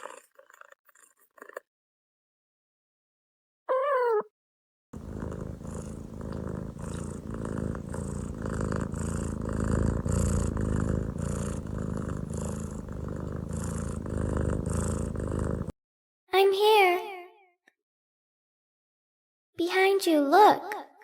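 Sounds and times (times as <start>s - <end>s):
cat purring: 5.0s - 15.7s.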